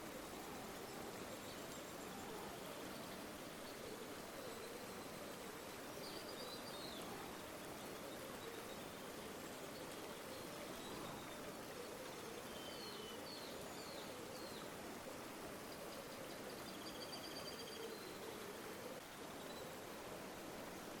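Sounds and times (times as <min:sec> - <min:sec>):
river water flowing: 0:00.0 - 0:21.0
faint bird calls: 0:09.7 - 0:19.8.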